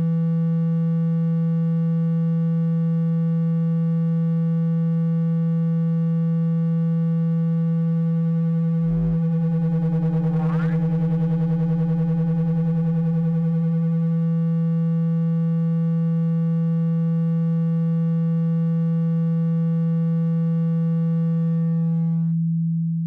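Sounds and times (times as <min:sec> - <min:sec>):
low buzzy electronic tone: 0:06.1 - 0:23.0.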